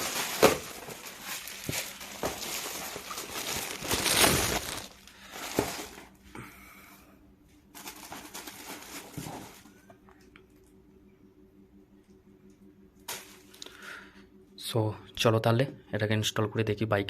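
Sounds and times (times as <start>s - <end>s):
plastic packaging crinkling: 0.0s - 6.1s, 7.7s - 9.7s.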